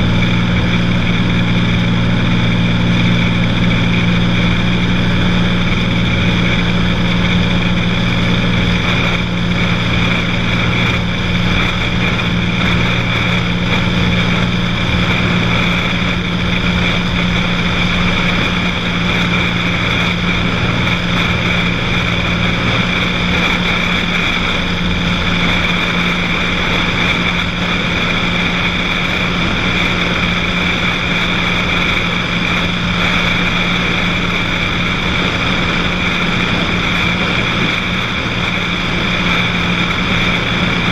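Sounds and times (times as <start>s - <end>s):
airplane engine drone in cabin: 0.0s - 40.9s.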